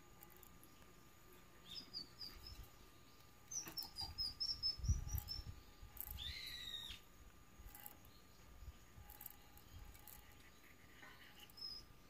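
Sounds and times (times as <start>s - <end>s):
small birds chirping: 0.0s - 12.0s
low rumble of wind: 4.0s - 10.1s.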